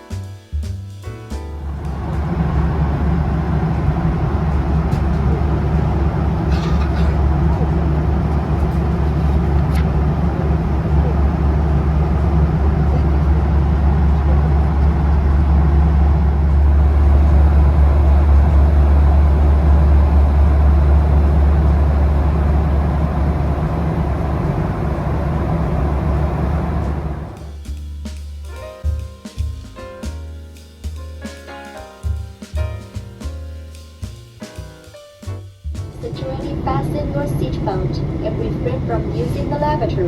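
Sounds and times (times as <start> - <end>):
jet engine and airflow rumble: 1.6 - 27.5, 35.8 - 40.0.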